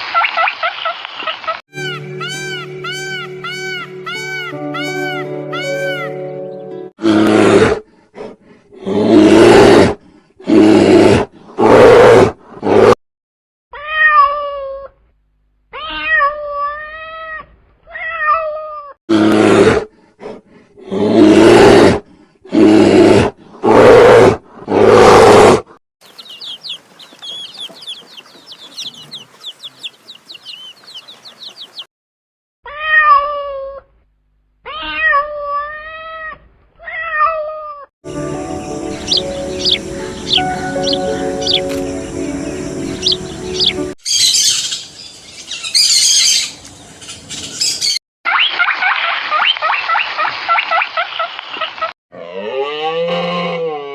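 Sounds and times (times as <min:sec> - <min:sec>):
fast high chirping: 0:26.0 - 0:31.8, 0:38.8 - 0:44.8.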